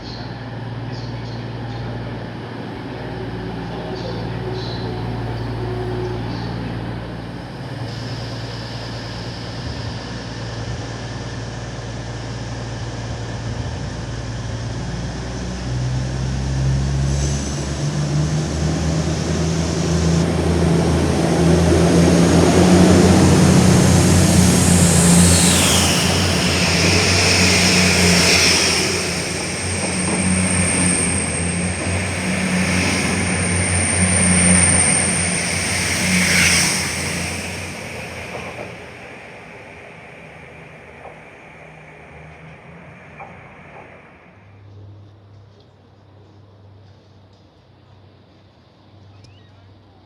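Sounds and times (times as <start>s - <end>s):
diesel train engine: 0.0s - 50.0s
high whistling tones: 19.9s - 40.3s.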